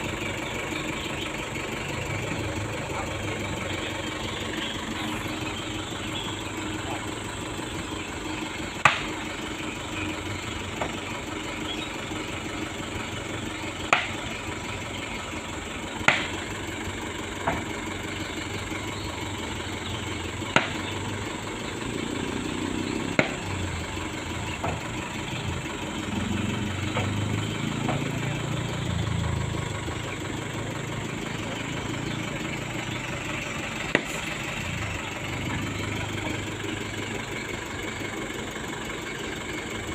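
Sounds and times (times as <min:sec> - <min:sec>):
truck engine running: 0:00.0 - 0:39.9
sharp knocks and clanks: 0:08.8 - 0:09.2, 0:10.7 - 0:11.2, 0:13.9 - 0:14.3, 0:16.0 - 0:16.5, 0:17.4 - 0:17.8, 0:20.5 - 0:21.0, 0:23.1 - 0:23.6, 0:24.4 - 0:25.1, 0:26.6 - 0:28.3, 0:33.9 - 0:34.4.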